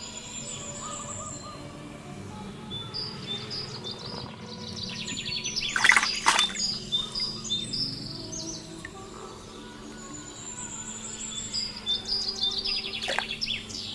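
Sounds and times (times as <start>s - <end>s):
birds chirping: 0.0s - 13.9s.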